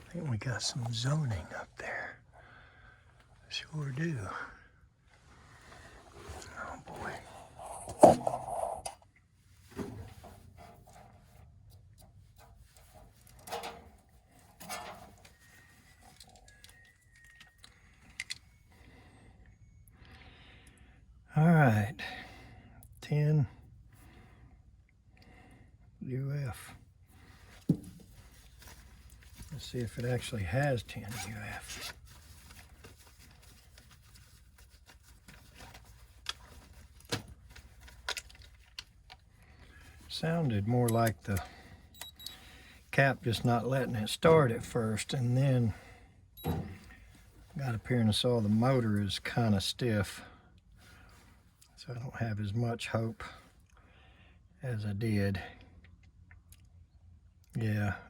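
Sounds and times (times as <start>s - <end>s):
rustling scrapes: 5.2s - 8.9s, 27.2s - 38.8s
handling noises: 9.6s - 18.8s, 27.1s - 43.8s, 46.4s - 47.6s.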